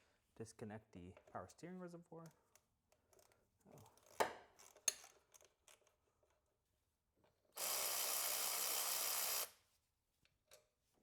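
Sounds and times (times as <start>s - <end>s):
small electric motor running: 7.6s - 9.6s.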